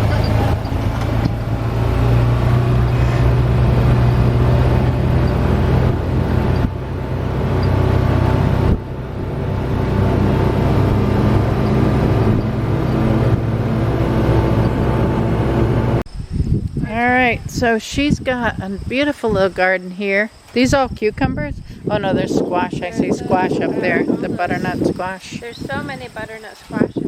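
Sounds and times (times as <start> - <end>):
engine hum inside vehicle: 0.0 - 16.1
road noise: 0.0 - 16.2, 17.3 - 27.0.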